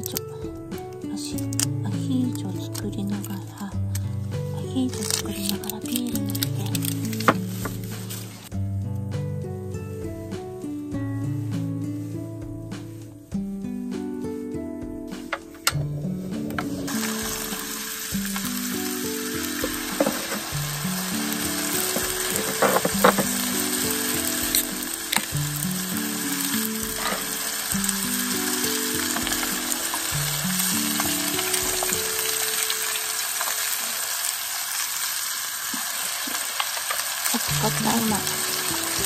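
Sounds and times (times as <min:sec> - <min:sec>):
oil sizzling: 0:00.0 - 0:08.6, 0:14.0 - 0:39.0
soft background music: 0:00.0 - 0:35.6, 0:36.7 - 0:39.0.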